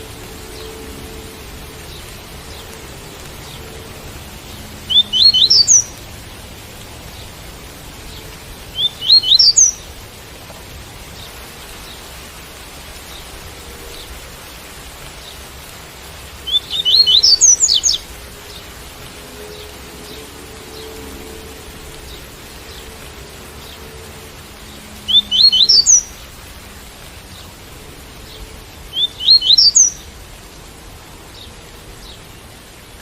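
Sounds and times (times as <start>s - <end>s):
rain hissing: 0.0s - 33.0s
bird singing rising notes: 4.9s - 6.0s, 8.8s - 9.8s, 16.4s - 18.6s, 24.9s - 26.2s, 28.4s - 30.0s.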